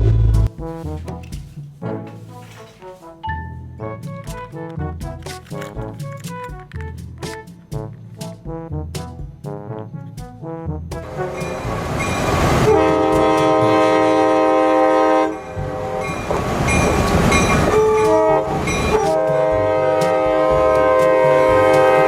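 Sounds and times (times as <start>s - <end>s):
moving train rumble: 0.0s - 2.4s, 3.9s - 22.0s
train horn blowing: 9.8s - 22.0s.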